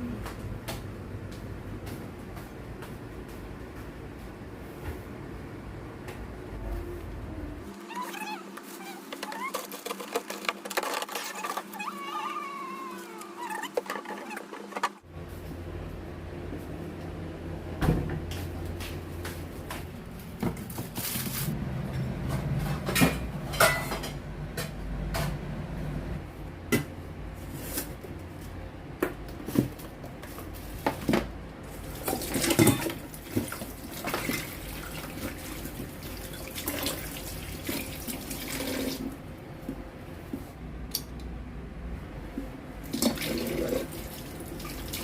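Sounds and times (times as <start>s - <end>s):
kitchenware knocking and clattering: 22.3s - 25.4s, 32.2s - 33.0s.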